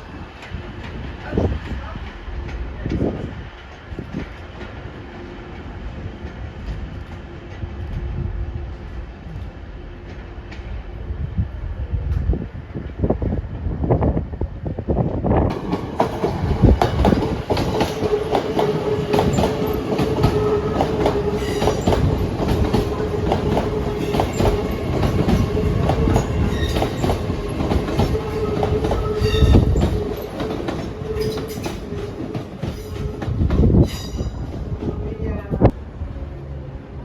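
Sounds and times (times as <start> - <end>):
train wheels clicking over rail joints: 15.5 - 34.3.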